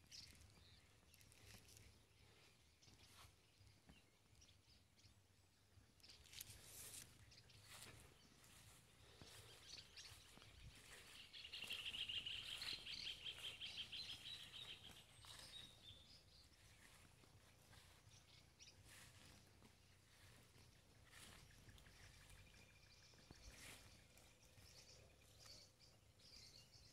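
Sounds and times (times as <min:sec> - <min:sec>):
short bird chirps: 0:09.5 - 0:16.2.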